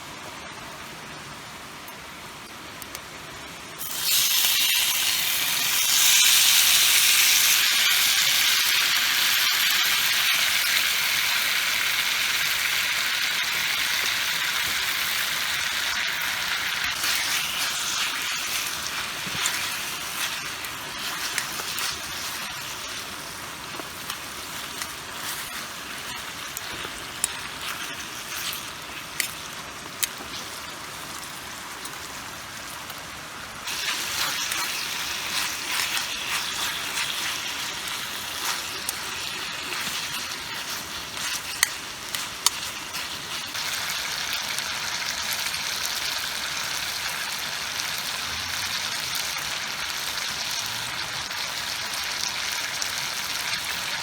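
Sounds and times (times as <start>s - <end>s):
food sizzling in a frying pan: 3.8s - 54.0s.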